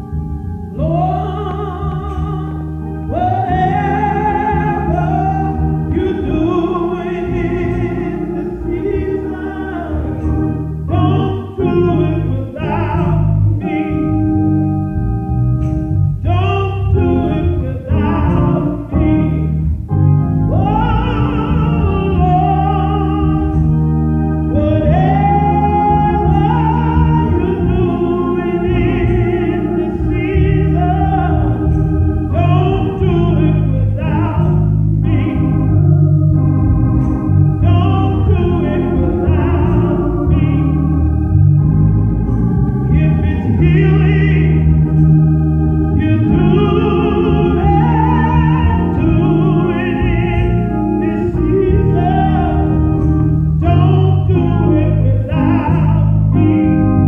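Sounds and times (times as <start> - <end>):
organ chords: 0.0 - 57.0
person singing: 0.8 - 14.2, 24.5 - 36.6, 37.6 - 41.2, 45.9 - 57.0.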